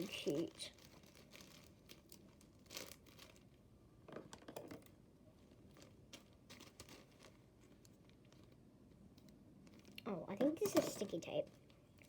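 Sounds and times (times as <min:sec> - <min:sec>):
plastic packet crinkling: 0:00.0 - 0:03.6, 0:05.4 - 0:08.6, 0:09.2 - 0:12.0.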